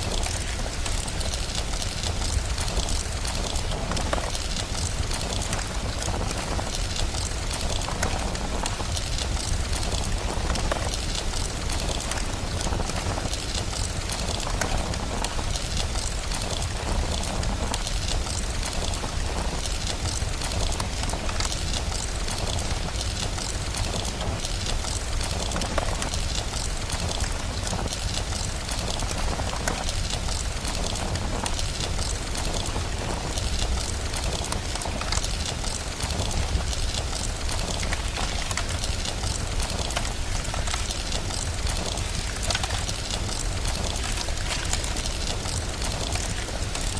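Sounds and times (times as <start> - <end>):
rain hiss: 0.0 - 46.9
wood fire crackling and popping: 0.0 - 46.9.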